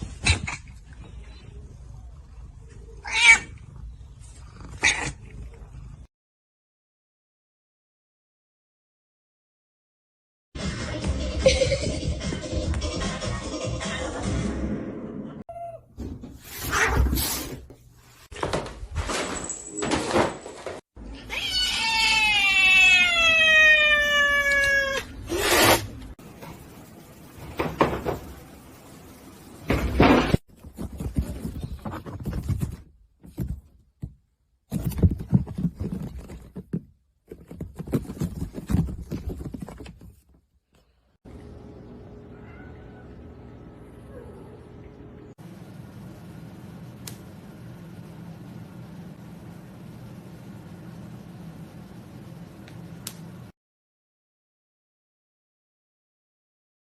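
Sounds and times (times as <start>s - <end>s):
cats meowing: 21.1s - 25.1s.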